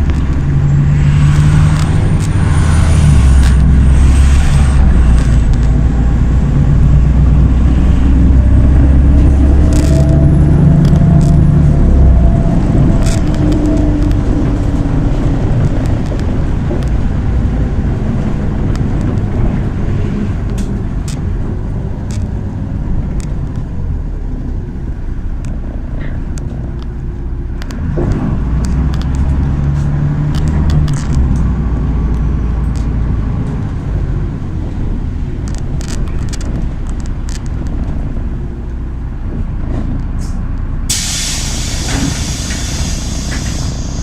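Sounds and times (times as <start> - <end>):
bus engine and road noise: 0.0 - 44.0
light rattles and clicks: 35.4 - 38.8.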